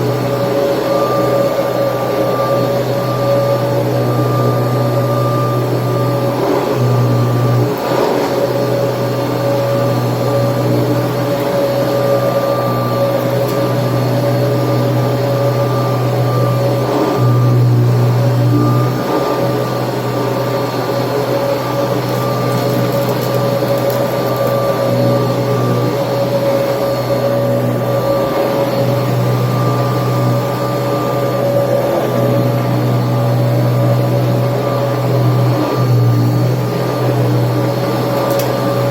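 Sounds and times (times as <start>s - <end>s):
upright vacuum cleaner running: 0.0s - 38.9s.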